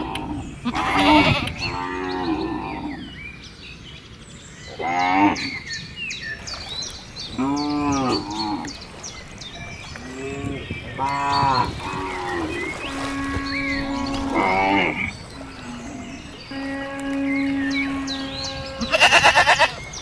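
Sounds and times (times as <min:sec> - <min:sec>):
cows mooing: 0:00.0 - 0:03.1, 0:07.3 - 0:08.7, 0:10.0 - 0:19.8.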